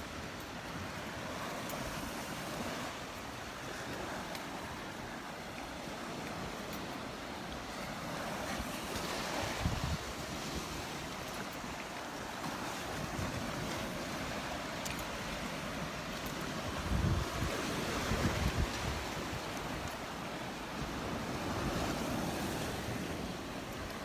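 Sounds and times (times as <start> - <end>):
waves breaking on beach: 0.0 - 24.0
wind buffeting microphone: 3.8 - 24.0.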